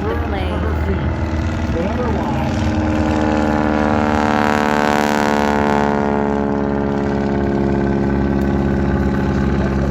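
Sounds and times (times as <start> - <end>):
propeller airplane engine droning: 0.0 - 9.9.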